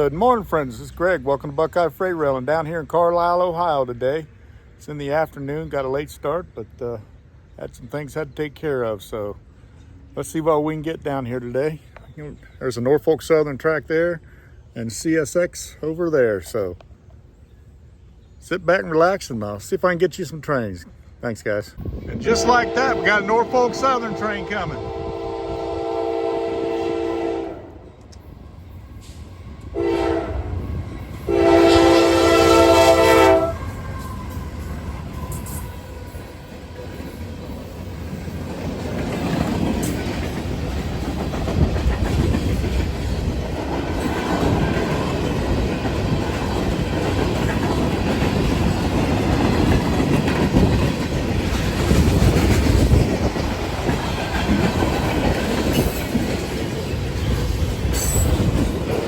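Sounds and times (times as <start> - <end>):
train rumbling on rails: 0.0 - 59.0
train horn blasts: 22.2 - 27.9, 29.7 - 34.6.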